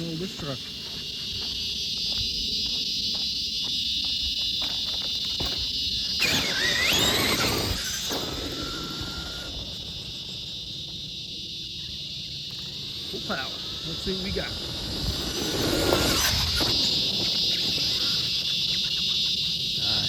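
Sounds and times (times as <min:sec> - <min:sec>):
insects chorusing: 0:00.0 - 0:20.0
toy truck electric motor whining: 0:04.8 - 0:11.3, 0:11.9 - 0:20.0.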